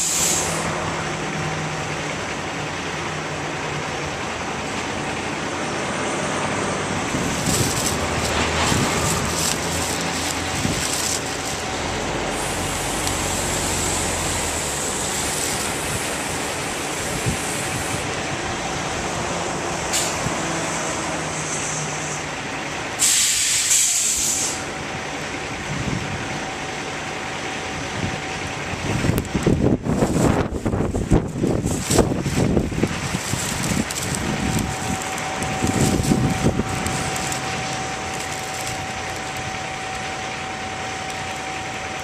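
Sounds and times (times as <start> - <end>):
air hiss burst: 0.0 - 0.7, 23.0 - 24.7
truck engine running: 0.0 - 42.0.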